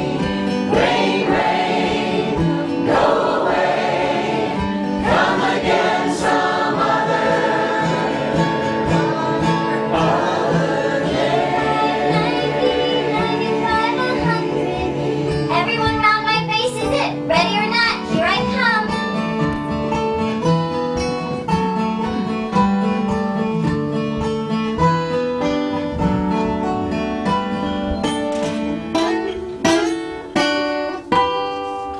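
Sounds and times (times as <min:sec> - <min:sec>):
voices singing in harmony: 0:00.0 - 0:16.5
acoustic guitar: 0:00.0 - 0:31.9.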